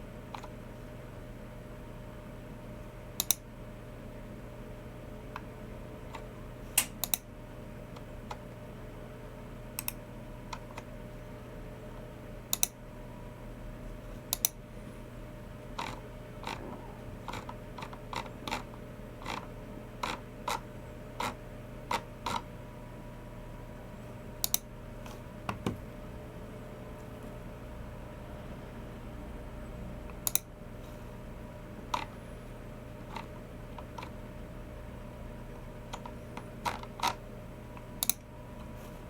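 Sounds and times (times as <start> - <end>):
mouse clicks: 30.2 - 30.5.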